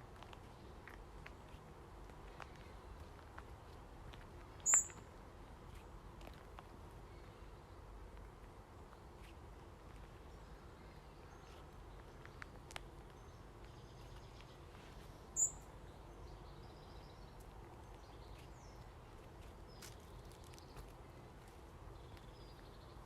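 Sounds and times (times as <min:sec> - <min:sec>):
sharp high bird chirp: 0:04.6 - 0:05.0, 0:15.4 - 0:15.7
faint bird chirps: 0:04.6 - 0:05.1, 0:15.2 - 0:17.3.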